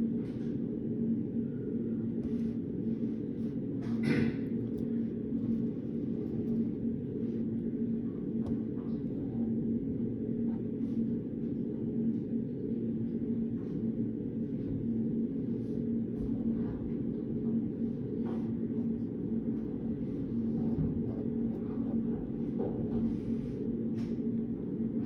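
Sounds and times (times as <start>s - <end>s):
room background hum: 0.0s - 25.0s.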